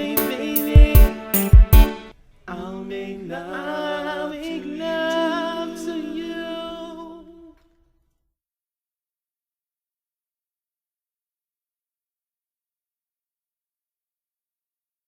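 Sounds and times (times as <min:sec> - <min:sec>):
drum hit: 0:00.2 - 0:02.0.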